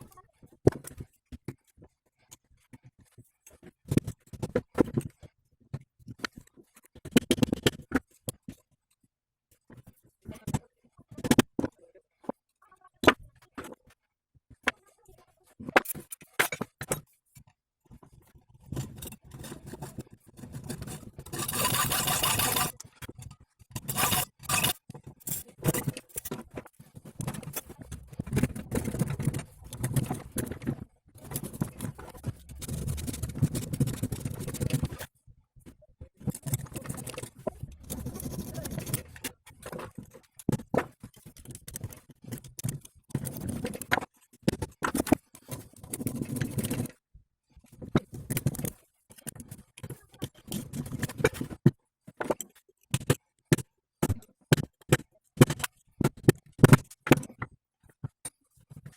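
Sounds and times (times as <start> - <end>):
metal scraping and clinking: 20.6 - 22.8, 23.8 - 26.3.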